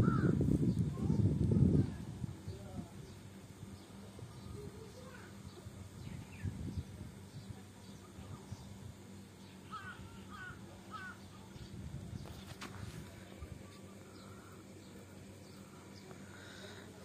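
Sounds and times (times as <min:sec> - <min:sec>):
birds calling: 0:00.0 - 0:01.2, 0:02.4 - 0:17.0.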